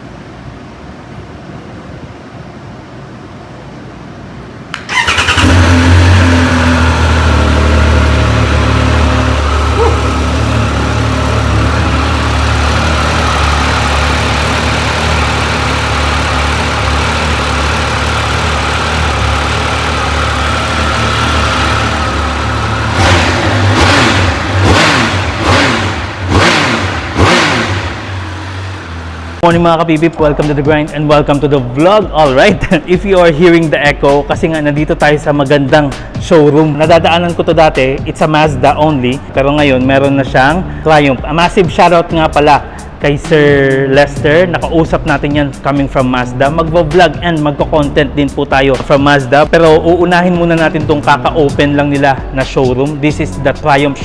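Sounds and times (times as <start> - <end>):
motorcycle engine idling and revving: 4.8 - 29.4.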